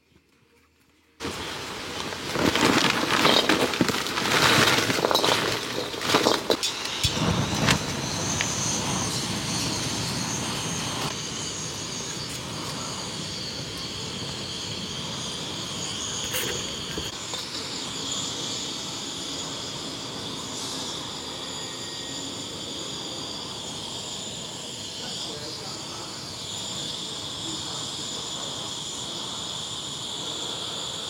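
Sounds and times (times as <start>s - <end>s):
insects chirring: 1.2s - 31.0s.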